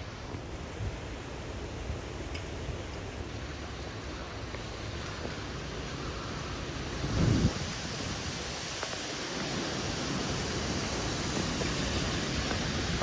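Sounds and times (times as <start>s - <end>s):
wind gust buffeting microphone: 0.0s - 13.0s
wind rushing: 4.8s - 13.0s.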